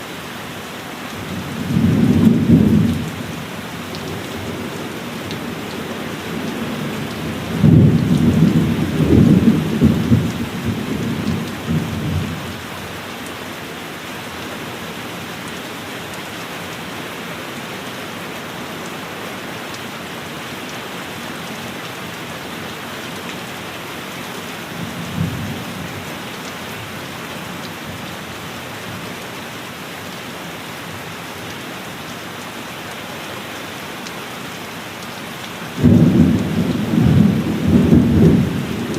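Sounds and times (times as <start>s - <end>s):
heavy rain: 0.0s - 38.9s
thunder rumbling: 4.4s - 12.5s, 35.8s - 38.9s.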